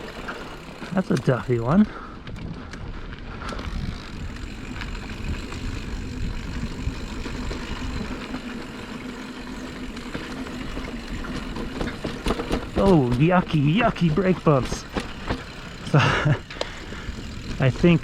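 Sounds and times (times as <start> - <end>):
bike tyres rumbling on dirt: 0.0 - 18.0
rattling bike parts: 0.0 - 18.0
wind on camera: 2.2 - 8.4.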